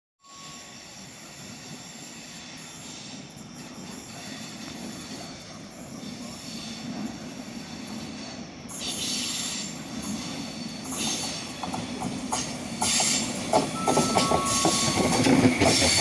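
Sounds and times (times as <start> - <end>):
train wheels rumbling on rail: 0.3 - 16.0
high squealing tones: 13.8 - 16.0.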